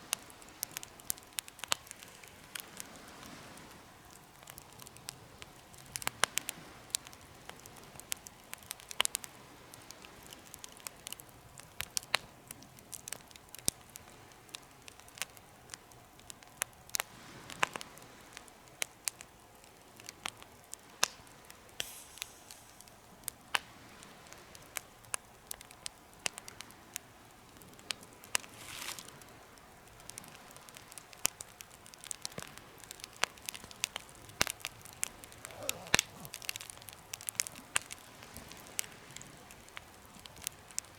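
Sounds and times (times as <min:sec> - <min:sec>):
wood fire crackling and popping: 0:00.0 - 0:40.9
fire hissing: 0:20.7 - 0:24.5, 0:28.0 - 0:40.9.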